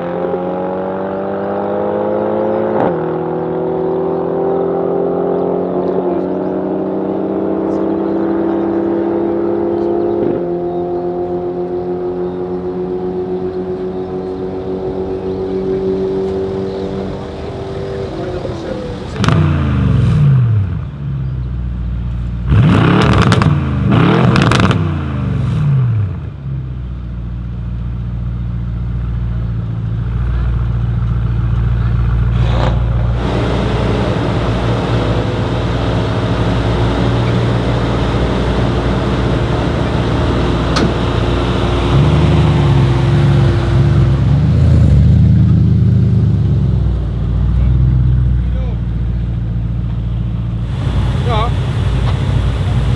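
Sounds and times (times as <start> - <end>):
car engine revving: 0.0 - 26.7, 29.1 - 52.9
steady engine note: 32.6 - 52.9.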